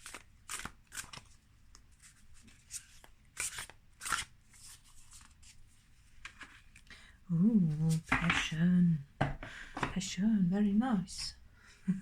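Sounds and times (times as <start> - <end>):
cards being shuffled: 0.0 - 6.9.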